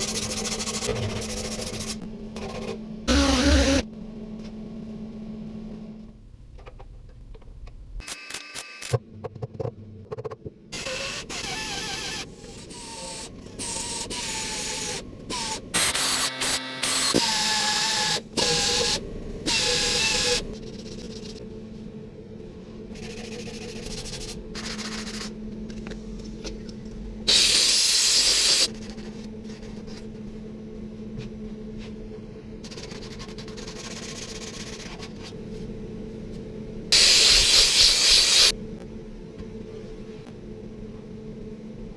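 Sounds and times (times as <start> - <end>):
loud hissing bursts: 37.0 - 38.5.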